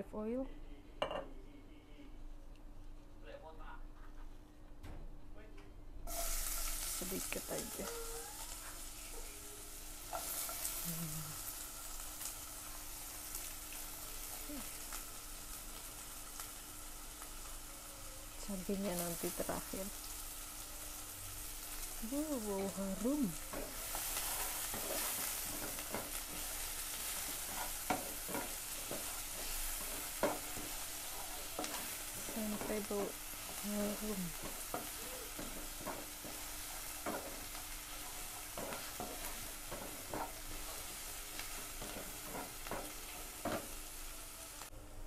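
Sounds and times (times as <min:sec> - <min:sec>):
onion and garlic sizzling in oil: 0:06.0 - 0:44.8
wooden spatula scraping a pan: 0:22.4 - 0:43.8.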